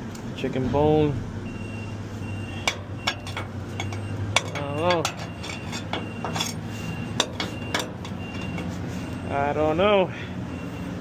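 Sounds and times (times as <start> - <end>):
garbage truck engine idling: 1.3 - 11.0
faint high beeps: 1.5 - 9.8
metallic clinks and knocks: 2.6 - 8.8.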